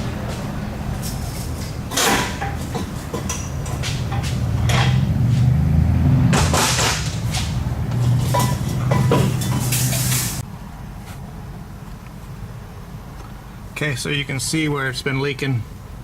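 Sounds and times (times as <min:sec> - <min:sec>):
steady low hum: 0:00.0 - 0:16.0
metal tools clanking: 0:01.0 - 0:05.1, 0:06.4 - 0:10.4.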